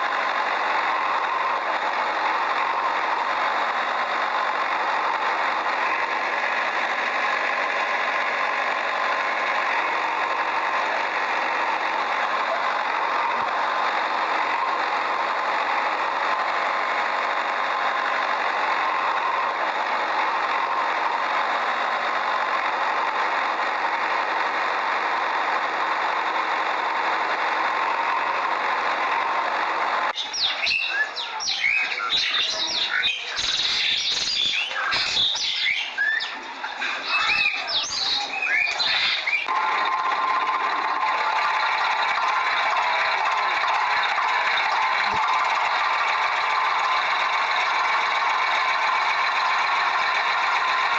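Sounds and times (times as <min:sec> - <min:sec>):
small motor running: 0:00.0 - 0:50.9
birds chirping: 0:30.2 - 0:39.5.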